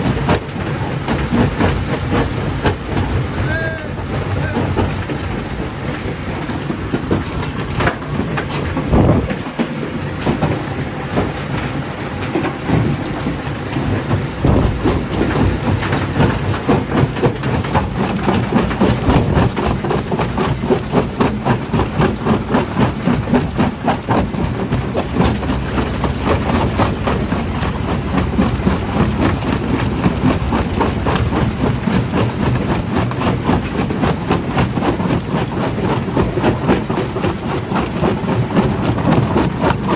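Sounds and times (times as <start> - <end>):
jaw crusher clattering: 13.5 - 39.9.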